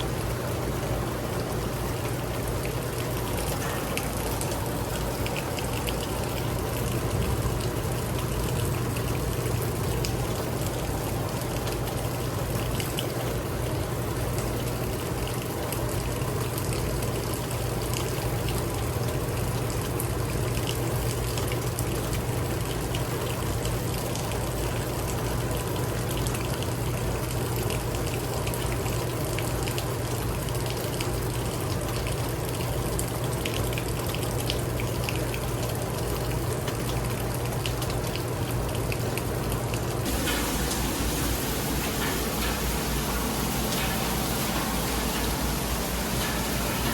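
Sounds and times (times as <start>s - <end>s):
heavy rain: 0.0s - 46.9s
runoff water trickling: 0.0s - 46.9s
low hum: 40.1s - 46.9s.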